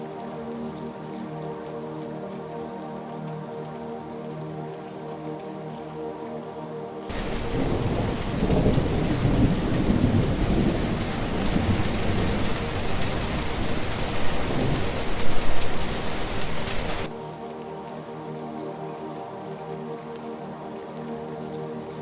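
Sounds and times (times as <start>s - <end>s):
thunder rumbling: 7.1s - 17.1s
heavy rain pouring: 7.1s - 17.2s.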